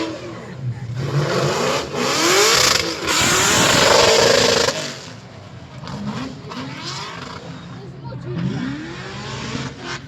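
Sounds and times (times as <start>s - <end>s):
vehicle engine revving: 0.0s - 10.0s.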